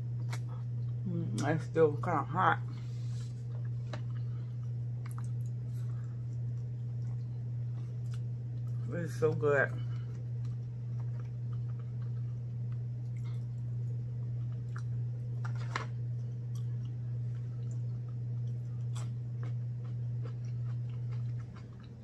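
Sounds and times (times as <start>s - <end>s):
person chewing: 0.0s - 1.4s, 2.8s - 8.8s, 9.8s - 22.0s
steady low hum: 0.0s - 22.0s.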